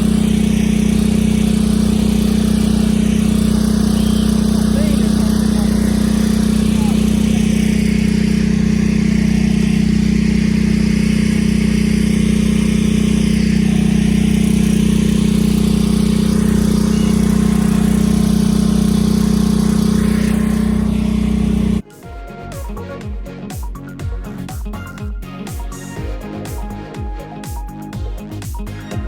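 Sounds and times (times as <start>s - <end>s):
engine droning steadily: 0.0s - 21.8s.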